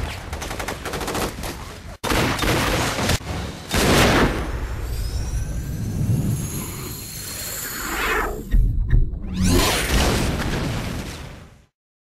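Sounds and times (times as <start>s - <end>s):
rapid gunfire: 0.3s - 4.2s.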